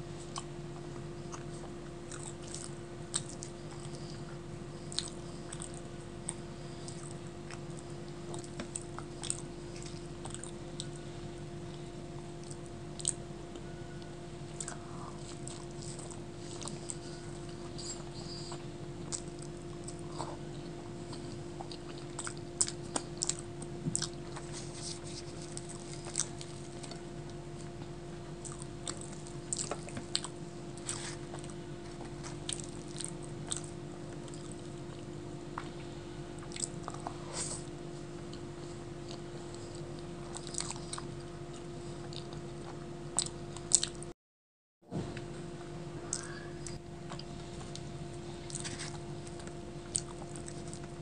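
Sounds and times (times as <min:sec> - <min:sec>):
low electrical hum: 0:00.0 - 0:44.1, 0:44.8 - 0:51.0
wet chewing and biting: 0:14.6 - 0:27.8, 0:46.1 - 0:51.0.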